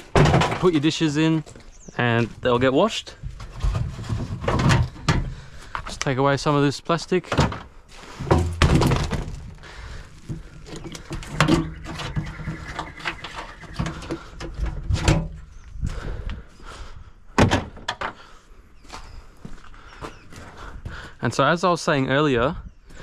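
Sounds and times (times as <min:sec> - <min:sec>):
plastic parts clattering on metal: 0:00.0 - 0:01.0, 0:03.4 - 0:05.9, 0:07.2 - 0:15.4.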